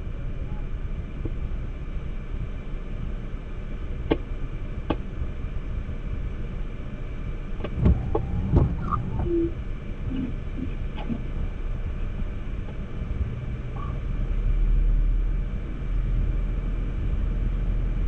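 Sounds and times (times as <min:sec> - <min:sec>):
car engine rumble inside cabin: 0:00.0 - 0:18.0
knocks and thumps: 0:07.6 - 0:09.4.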